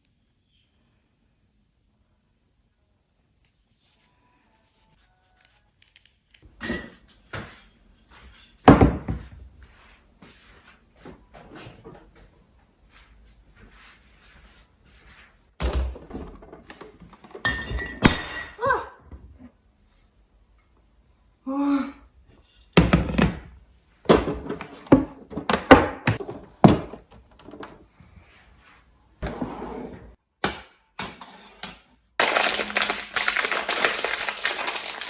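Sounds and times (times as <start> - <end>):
objects thudding and knocking: 8.6 - 9.5, 15.6 - 18.6, 22.7 - 27.9.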